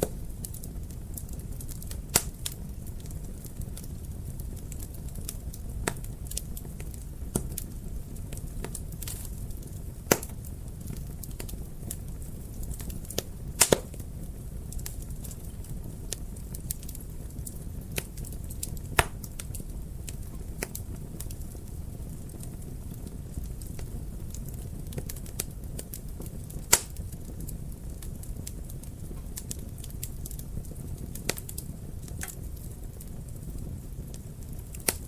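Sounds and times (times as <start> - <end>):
fire rumbling: 0.0 - 35.0
wood fire popping: 0.0 - 35.0.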